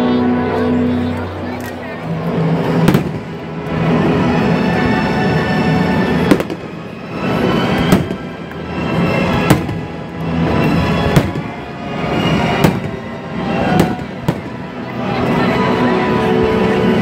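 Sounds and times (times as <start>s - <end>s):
fireworks bangs: 2.3s - 4.3s, 6.0s - 14.9s.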